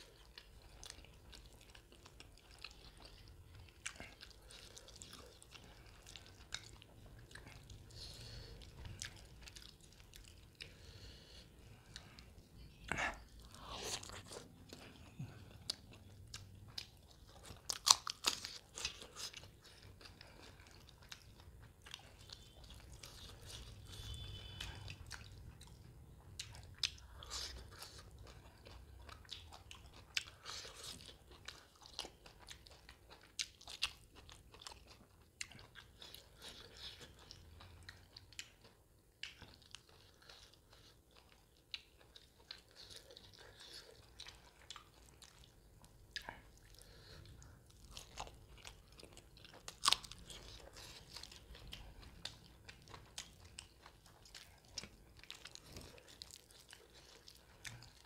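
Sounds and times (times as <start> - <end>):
wet chewing and biting: 12.9 - 58.0.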